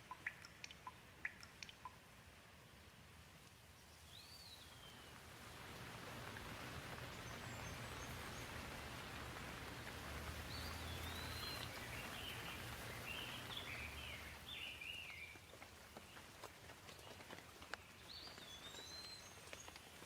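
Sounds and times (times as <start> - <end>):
gentle rain falling: 0.0 - 20.0
bird chirping: 10.5 - 15.4.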